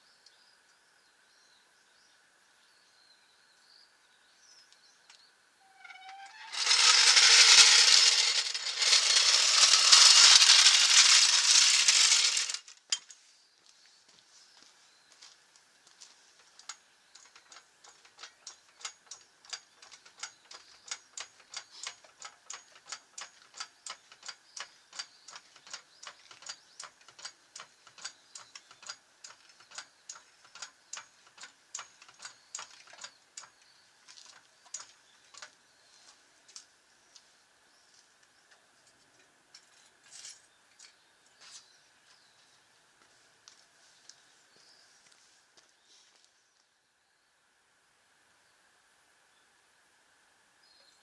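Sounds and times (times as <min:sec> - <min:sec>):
faint rapid clicking: 0:06.4 - 0:12.7, 0:16.4 - 0:35.5.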